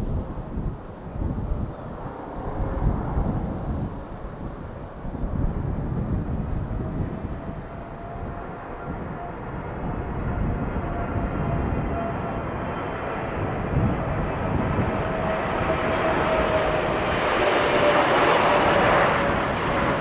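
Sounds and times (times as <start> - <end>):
jet engines rumbling and whining: 5.4 - 20.0.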